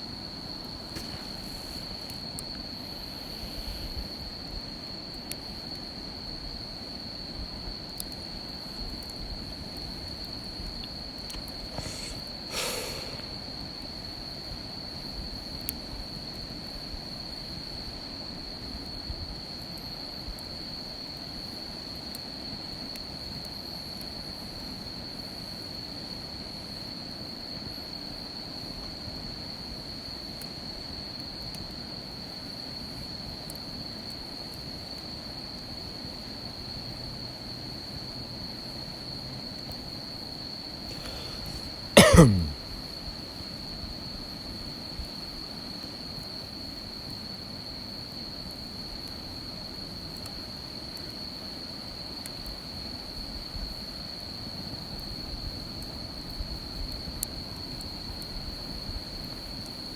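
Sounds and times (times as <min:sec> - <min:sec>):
low hiss with pops: 0:00.4 - 0:04.2, 0:08.0 - 0:13.7, 0:40.9 - 0:42.3
insect trilling: 0:11.7 - 0:13.4.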